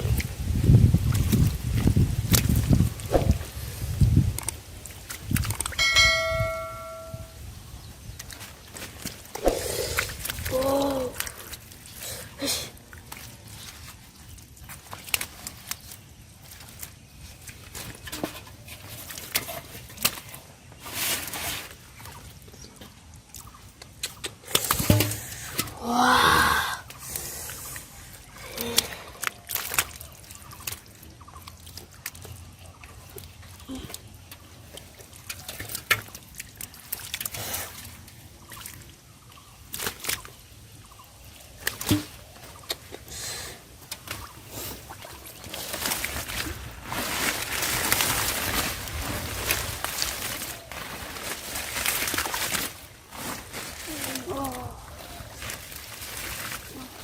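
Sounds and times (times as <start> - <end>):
small water splashes: 0.0 - 7.2, 8.0 - 25.8, 26.6 - 57.0
plants rustling: 0.0 - 23.7, 24.4 - 31.3, 33.4 - 57.0
water dripping: 4.3 - 7.4, 22.0 - 40.6
rush of splashing: 41.5 - 57.0.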